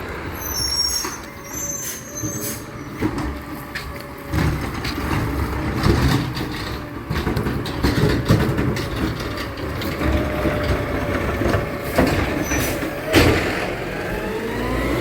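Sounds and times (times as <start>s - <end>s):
garbage truck mechanism rattling: 4.3s - 14.3s.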